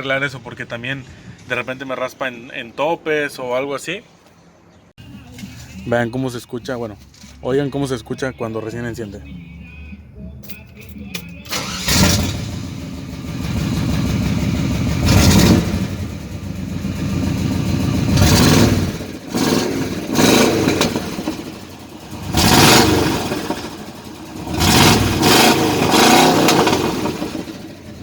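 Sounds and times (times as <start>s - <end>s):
exhaust popping: 11.5s - 28.0s
pickup engine revving: 11.5s - 28.0s.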